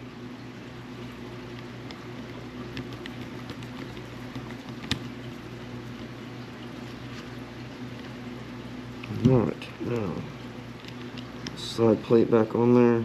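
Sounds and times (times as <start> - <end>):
light ticks of small parts: 1.5 - 5.2.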